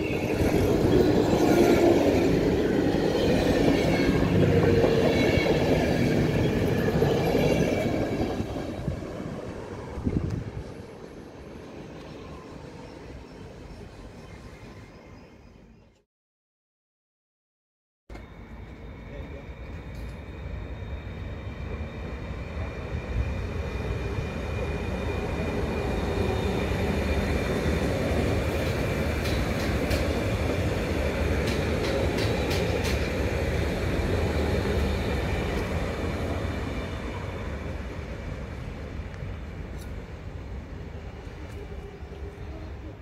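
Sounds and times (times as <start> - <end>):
electric train passing: 0.0 - 15.7, 18.1 - 43.0.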